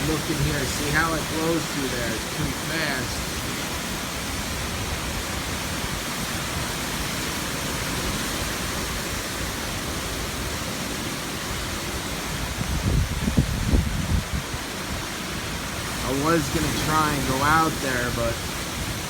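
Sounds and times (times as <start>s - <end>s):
strong wind rushing: 0.0s - 5.2s, 12.5s - 14.7s
wind gusts buffeting microphone: 0.0s - 10.0s, 11.5s - 19.0s.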